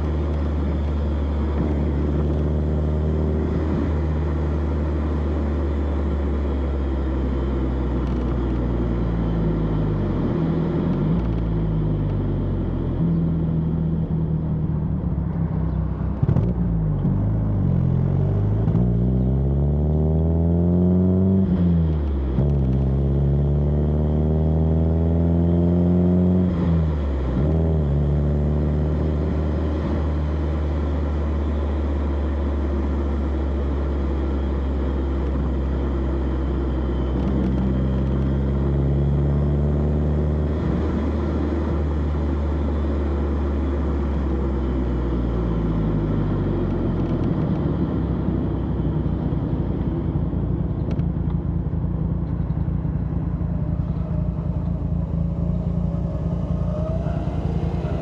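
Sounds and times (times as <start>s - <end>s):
car exhaust revving: 43.0s - 58.0s.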